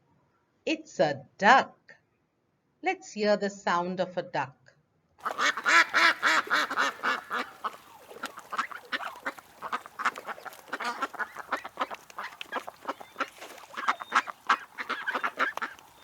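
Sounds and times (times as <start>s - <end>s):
duck quacking: 5.2s - 16.0s.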